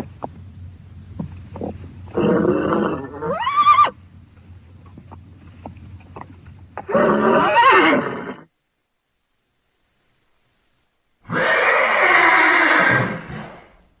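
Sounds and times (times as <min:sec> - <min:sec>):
horse whinnying: 0:02.1 - 0:04.0, 0:06.8 - 0:08.5, 0:11.3 - 0:13.7.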